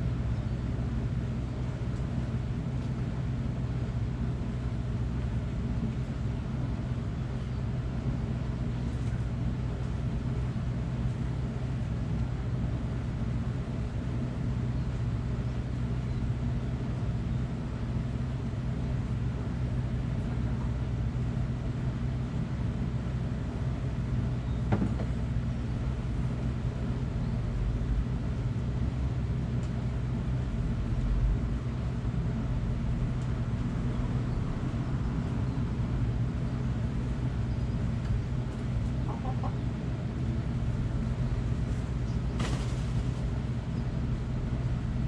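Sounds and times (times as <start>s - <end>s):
low machine hum: 0.0s - 45.0s.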